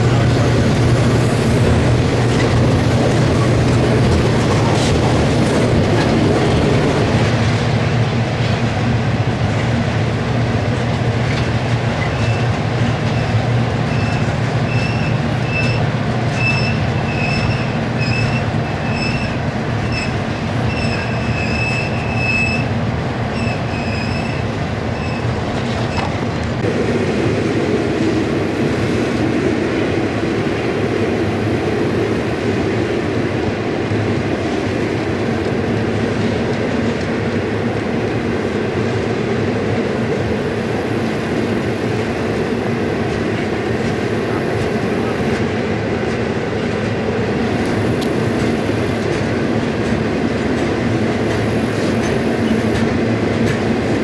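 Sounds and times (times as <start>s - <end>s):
train rumbling on rails: 0.0s - 54.0s
high-pitched wheel squeal: 13.9s - 22.7s, 23.3s - 25.3s.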